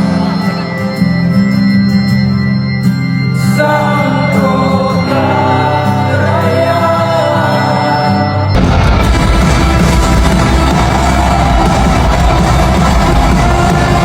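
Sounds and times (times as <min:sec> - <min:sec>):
live band playing: 0:00.0 - 0:14.0
person singing: 0:03.4 - 0:08.6
drums: 0:08.6 - 0:14.0.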